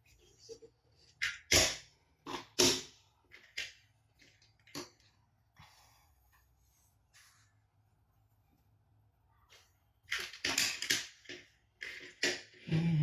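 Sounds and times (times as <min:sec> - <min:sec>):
plastic toys knocking: 0:10.1 - 0:12.6.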